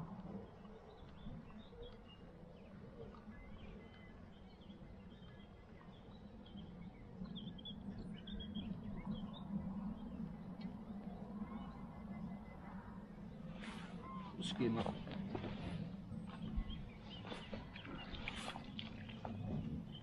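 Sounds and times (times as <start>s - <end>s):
small birds chirping: 13.5s - 20.0s.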